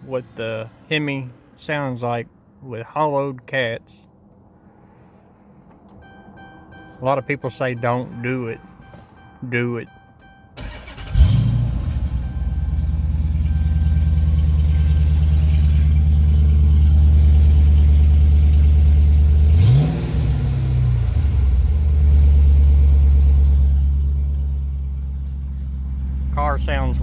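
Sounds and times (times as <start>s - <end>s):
car engine idling: 4.3s - 27.0s
engine revving: 10.6s - 27.0s.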